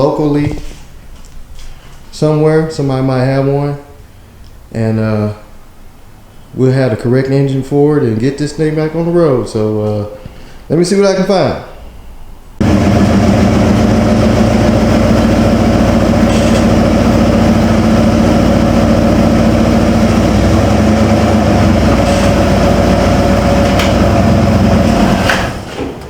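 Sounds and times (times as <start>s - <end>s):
vehicle engine droning: 12.6s - 26.0s.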